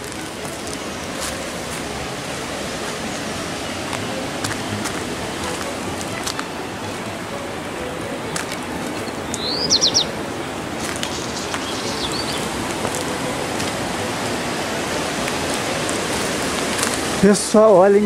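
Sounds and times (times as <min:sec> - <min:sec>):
steady outdoor noise: 0:00.0 - 0:18.0
bird chirping: 0:09.0 - 0:10.2, 0:10.8 - 0:13.3.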